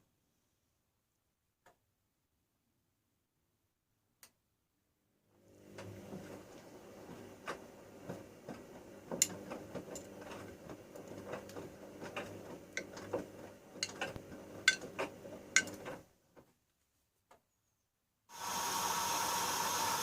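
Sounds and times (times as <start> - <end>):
washing machine motor hum: 5.4 - 16.1, 18.3 - 20.0.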